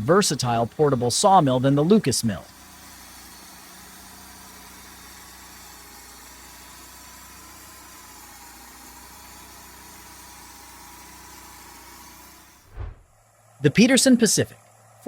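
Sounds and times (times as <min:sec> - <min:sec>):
machine engine running: 0:00.0 - 0:02.8, 0:12.4 - 0:15.0.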